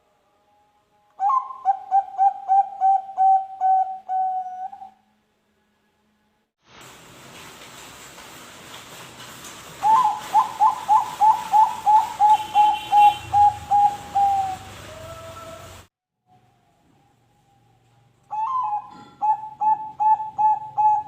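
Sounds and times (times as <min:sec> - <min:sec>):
dove cooing: 0:01.2 - 0:05.0, 0:09.8 - 0:15.8, 0:18.3 - 0:21.0
steady hiss: 0:06.6 - 0:15.9.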